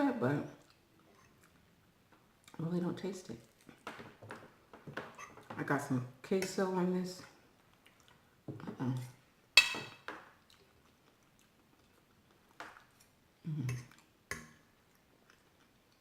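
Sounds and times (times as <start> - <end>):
chewing: 0.6 - 2.6, 3.4 - 4.0, 7.6 - 8.3, 10.3 - 14.1, 14.8 - 16.0
utensil clinking on plate: 9.6 - 10.2.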